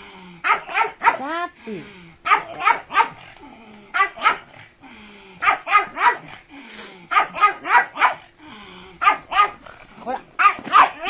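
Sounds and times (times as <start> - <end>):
dog barking: 0.4 - 1.3, 2.2 - 3.2, 4.0 - 4.5, 5.4 - 6.3, 7.1 - 8.3, 9.0 - 9.6, 10.4 - 11.0.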